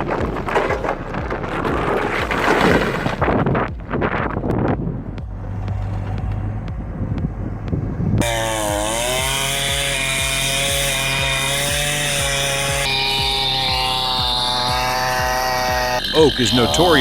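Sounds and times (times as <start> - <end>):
rumbling wind-like noise: 0.0 - 8.6
chainsaw running: 8.2 - 17.0.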